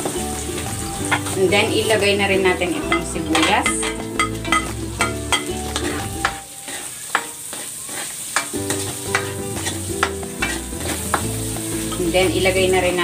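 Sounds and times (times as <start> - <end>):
onion sizzling in hot oil: 0.0 - 13.0
spatula knocking on metal wok: 2.9 - 6.4, 7.1 - 7.7, 8.4 - 12.1.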